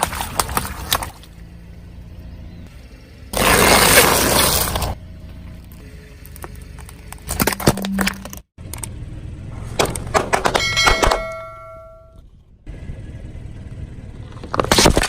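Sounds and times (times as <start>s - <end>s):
objects crunching under a tyre: 3.3s - 8.5s, 14.2s - 15.0s.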